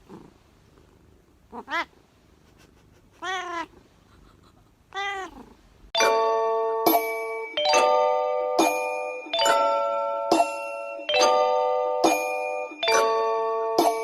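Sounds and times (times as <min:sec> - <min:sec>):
cat meowing: 0:01.5 - 0:02.0, 0:03.2 - 0:03.8, 0:04.9 - 0:05.5.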